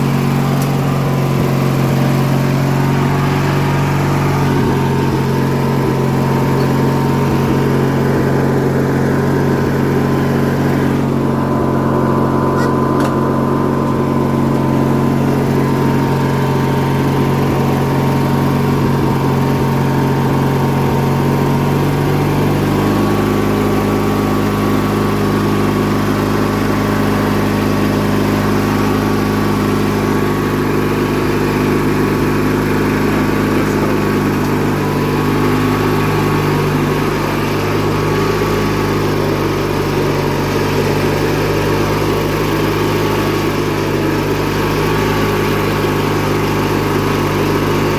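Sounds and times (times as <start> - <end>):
lawn tractor engine running: 0.0 - 47.9.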